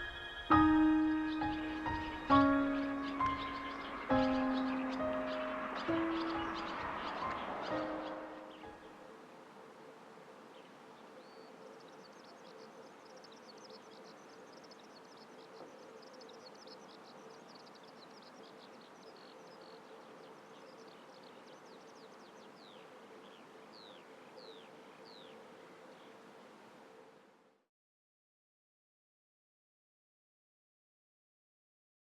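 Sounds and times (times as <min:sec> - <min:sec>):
twittering birdsong: 0:00.0 - 0:09.3, 0:10.4 - 0:26.3.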